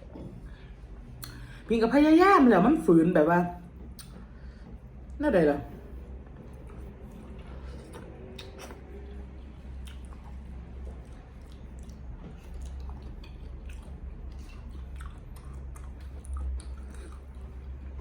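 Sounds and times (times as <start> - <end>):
steady low hum: 0.0 - 18.0
wet mouth clicks and smacks: 1.2 - 1.4, 3.9 - 4.2, 7.9 - 8.9
person chewing food: 3.8 - 4.8, 6.3 - 18.0.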